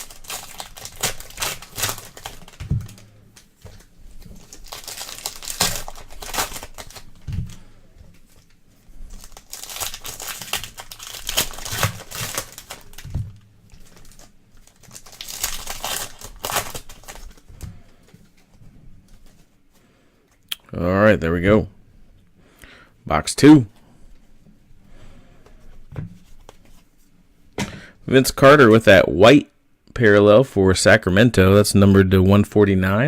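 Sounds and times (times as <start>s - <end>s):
plastic packaging crinkling and tearing: 0.0s - 17.5s.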